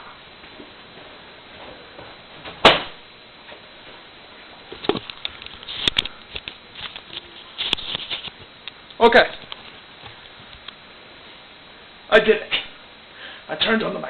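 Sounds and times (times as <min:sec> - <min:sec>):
sharp knock: 0:02.6 - 0:03.0.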